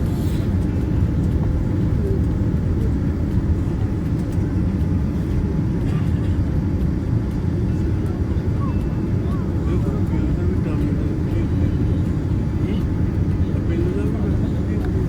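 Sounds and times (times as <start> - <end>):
airliner cabin engine rumble: 0.0 - 15.0.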